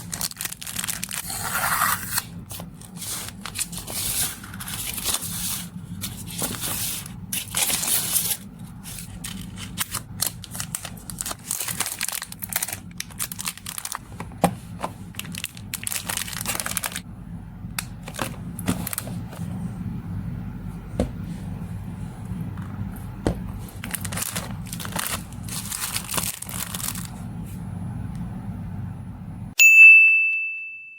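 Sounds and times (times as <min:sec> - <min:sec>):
packaging tearing: 0:00.0 - 0:14.2, 0:15.1 - 0:17.0, 0:23.7 - 0:27.2
plastic and paper crinkling: 0:00.0 - 0:17.0, 0:18.0 - 0:19.5, 0:23.3 - 0:27.3.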